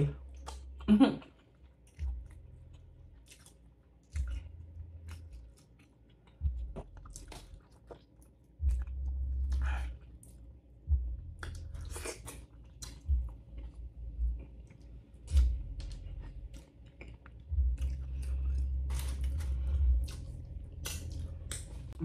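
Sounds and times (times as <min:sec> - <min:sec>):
wet chewing: 0:00.3 - 0:10.5, 0:11.3 - 0:22.0
muffled bass of loud music: 0:02.0 - 0:03.1, 0:04.2 - 0:05.4, 0:06.4 - 0:07.7, 0:08.6 - 0:10.0, 0:10.9 - 0:12.1, 0:12.8 - 0:14.5, 0:15.3 - 0:16.6, 0:17.4 - 0:22.0.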